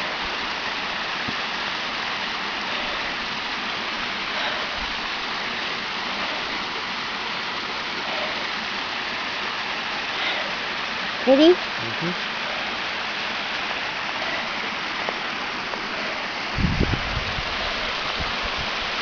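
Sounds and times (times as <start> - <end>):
waterfall splashing: 0.0 - 19.0.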